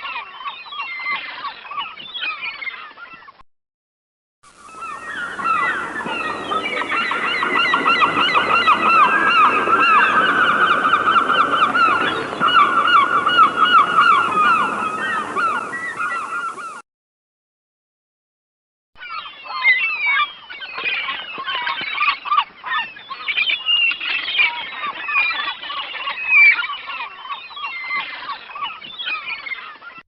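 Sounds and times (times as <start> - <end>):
nestling birds chirping: 4.5 - 16.8.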